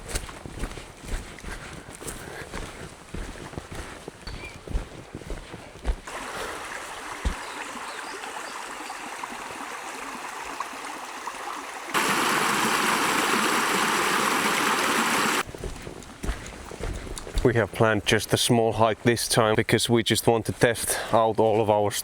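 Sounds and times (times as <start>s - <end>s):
stream water rushing: 5.8s - 15.4s.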